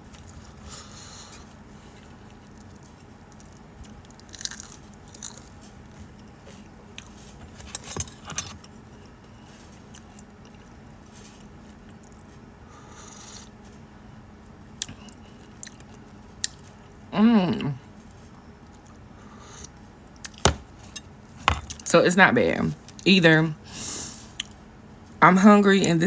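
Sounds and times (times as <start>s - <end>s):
person chewing food: 0.1s - 6.3s.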